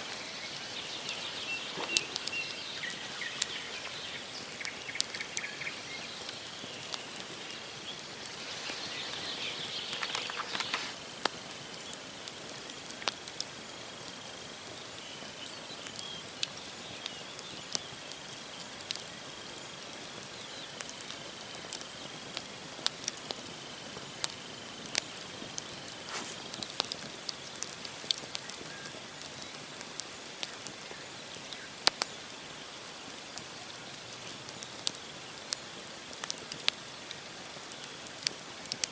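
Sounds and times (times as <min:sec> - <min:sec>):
wood fire crackling and popping: 0:00.0 - 0:14.7, 0:18.8 - 0:38.9.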